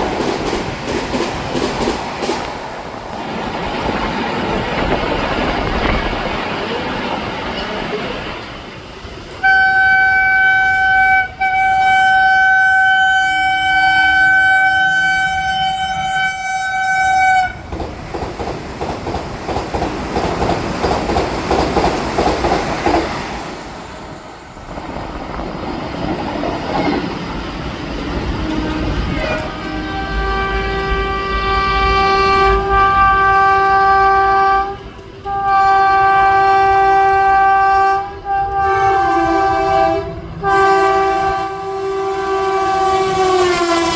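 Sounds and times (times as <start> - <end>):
train wheels clattering: 0.0 - 9.6, 17.6 - 30.1
train horn blasts: 9.4 - 17.7, 28.3 - 43.9.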